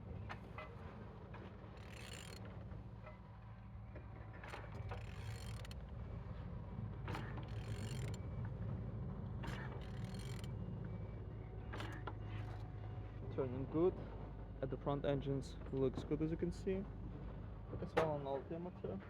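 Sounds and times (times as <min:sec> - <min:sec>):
ratchet wrench turning engine: 0:01.7 - 0:02.6, 0:04.4 - 0:05.9, 0:07.1 - 0:08.3, 0:09.4 - 0:10.6.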